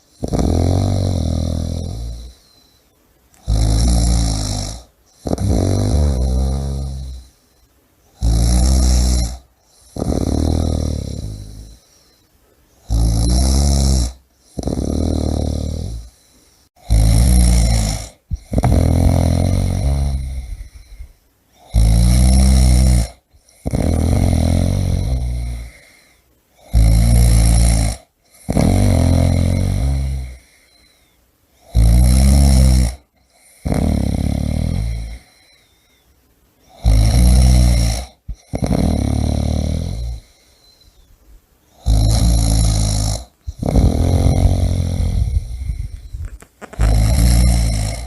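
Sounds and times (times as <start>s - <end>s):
person snoring heavily: 0.0s - 2.8s, 3.4s - 7.5s, 8.1s - 12.1s, 12.8s - 31.0s, 31.6s - 35.7s, 36.7s - 41.0s, 41.7s - 48.0s
soft breathing: 2.1s - 3.5s, 11.1s - 12.8s, 15.9s - 16.8s, 20.2s - 21.7s, 25.6s - 26.4s, 30.3s - 31.7s, 35.0s - 36.8s, 40.1s - 41.8s, 43.2s - 48.0s.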